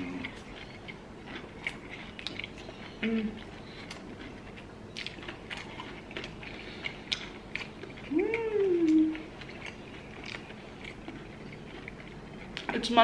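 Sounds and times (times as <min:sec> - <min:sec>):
chewing and biting fried chicken: 0:00.0 - 0:13.0
person humming: 0:03.0 - 0:03.4, 0:08.1 - 0:09.2.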